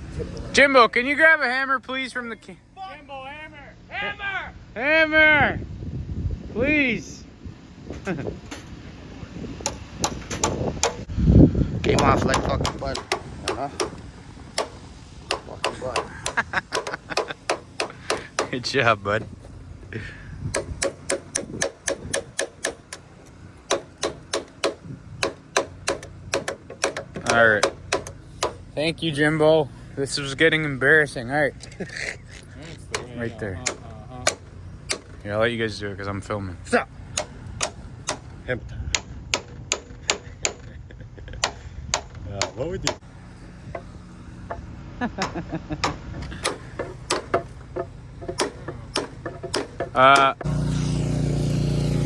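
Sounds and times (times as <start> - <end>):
hammer blows on metal: 9.6 - 11.2, 11.8 - 28.8, 32.8 - 35.4, 37.1 - 40.8, 41.4 - 43.1, 43.7 - 51.7
tools clicking on metal: 11.9 - 18.6, 20.5 - 28.6, 32.8 - 35.3, 45.2 - 50.5.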